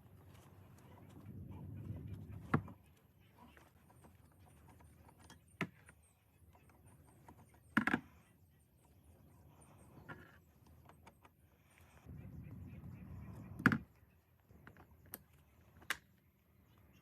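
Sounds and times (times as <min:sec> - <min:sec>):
low rumble: 0:12.1 - 0:13.8.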